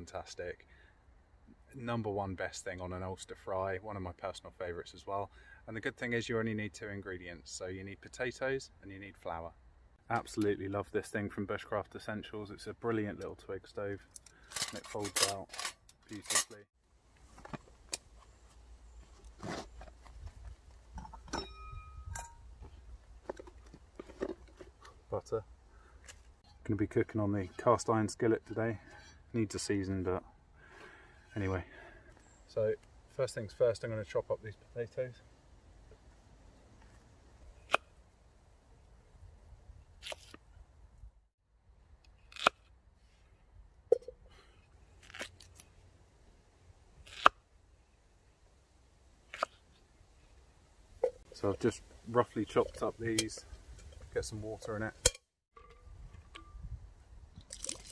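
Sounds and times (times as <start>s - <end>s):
rustling of camping gear: 14.0s - 26.4s, 49.5s - 55.0s
short ringing clink: 21.3s - 22.5s.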